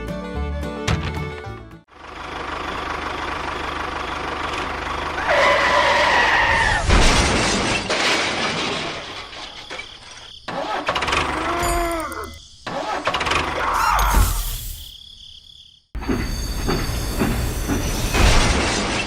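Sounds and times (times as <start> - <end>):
small engine running: 1.9 - 6.1
loud clatter: 6.8 - 9.7.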